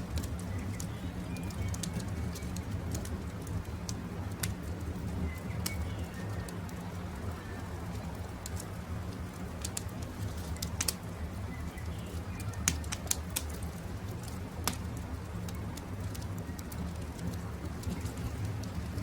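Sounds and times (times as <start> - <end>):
campfire crackling and popping: 0.0 - 19.0
low fire rumble: 0.0 - 19.0.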